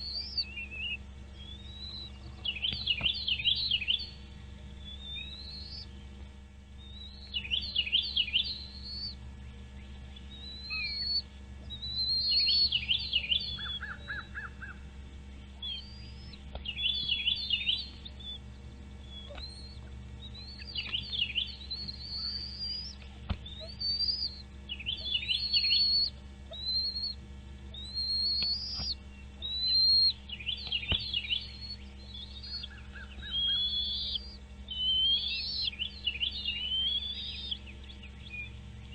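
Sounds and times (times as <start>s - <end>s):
birds chirping and whistling: 0.0s - 38.9s
steady low hum: 0.0s - 38.9s.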